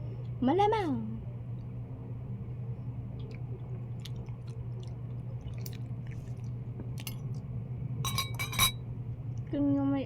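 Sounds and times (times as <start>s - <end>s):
low hum: 0.0s - 9.8s
person chewing wetly: 3.1s - 7.5s.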